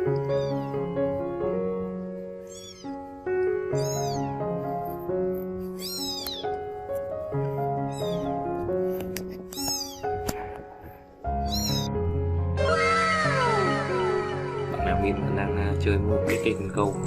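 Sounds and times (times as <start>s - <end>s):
background music held notes: 0.0s - 17.0s
kitten meowing: 0.1s - 0.9s, 2.4s - 3.0s, 3.7s - 4.4s, 5.7s - 6.6s, 7.8s - 8.4s, 9.5s - 10.2s, 11.4s - 12.0s.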